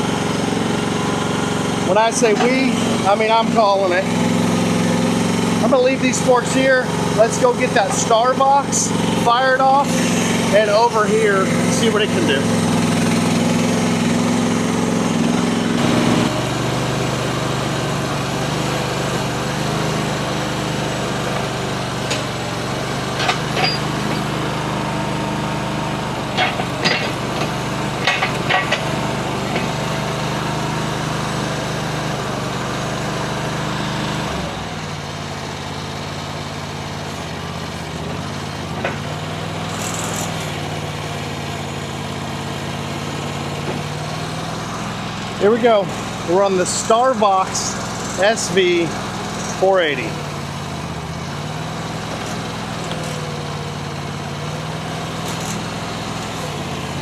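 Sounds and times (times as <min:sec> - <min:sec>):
small engine running: 0:00.0 - 0:57.0
sharp clicks and knocks: 0:21.2 - 0:22.4, 0:23.1 - 0:24.3, 0:26.3 - 0:29.8, 0:37.9 - 0:40.6.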